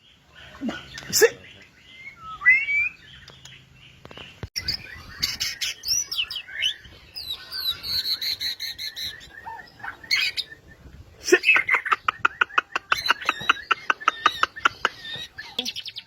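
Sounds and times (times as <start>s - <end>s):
bird singing whistled notes: 0.8s - 3.8s, 4.6s - 11.0s.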